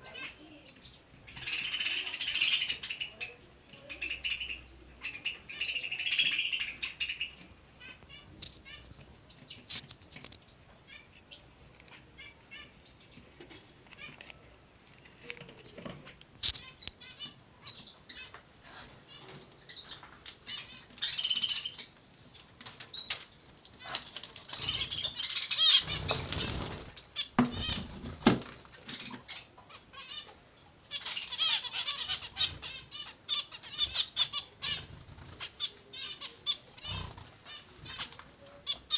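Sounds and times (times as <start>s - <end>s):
finches chirping: 0.0s - 9.8s, 10.9s - 18.4s, 19.1s - 28.0s, 30.9s - 38.9s
chicks twittering: 0.0s - 38.9s
wing flutters: 25.7s - 28.7s.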